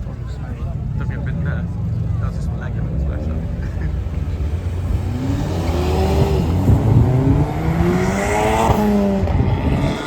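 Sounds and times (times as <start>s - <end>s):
racing engine accelerating: 4.3s - 10.0s.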